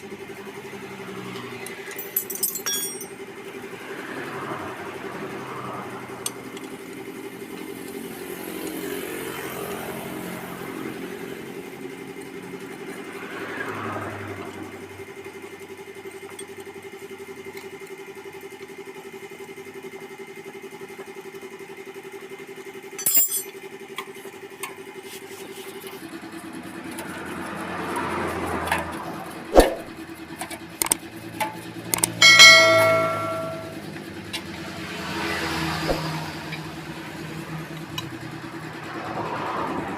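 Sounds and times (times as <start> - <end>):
motorcycle engine running: 0.0 - 39.9
metallic clinks: 1.9 - 3.2, 23.0 - 23.5, 31.9 - 33.8
short ringing tone: 32.1 - 33.8.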